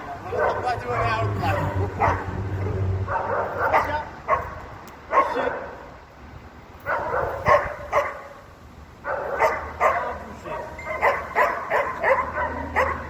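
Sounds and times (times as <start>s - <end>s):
dog barking: 0.0s - 5.9s, 6.8s - 8.4s, 9.0s - 13.0s.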